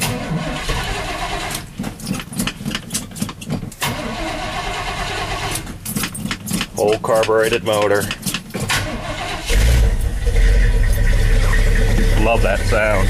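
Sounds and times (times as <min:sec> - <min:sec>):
engine cranking and starting: 0:00.0 - 0:13.0
car engine running unevenly: 0:09.4 - 0:13.0.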